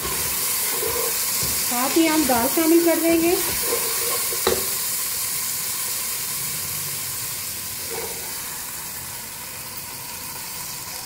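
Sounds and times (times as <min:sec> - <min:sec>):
masala sizzling in oil: 0:00.0 - 0:11.0.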